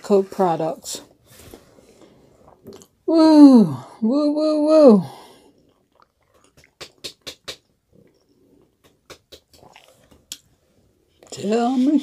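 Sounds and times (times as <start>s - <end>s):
person chewing with wet clicks: 2.6s - 3.0s, 5.5s - 10.5s.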